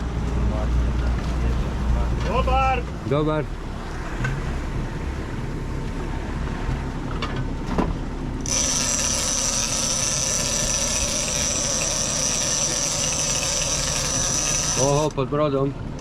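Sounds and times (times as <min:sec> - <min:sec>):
boat engine running: 0:00.0 - 0:16.0
fishing reel drag buzzing: 0:08.4 - 0:15.1.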